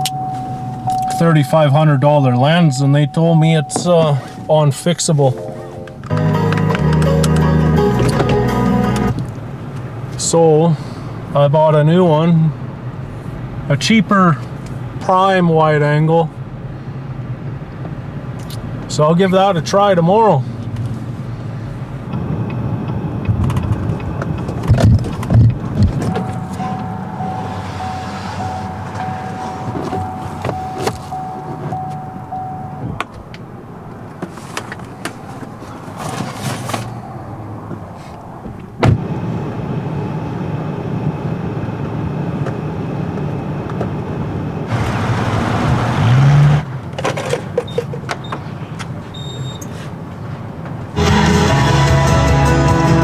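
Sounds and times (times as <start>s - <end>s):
car noise: 0.0s - 53.0s
background music: 5.3s - 9.2s, 51.0s - 53.0s.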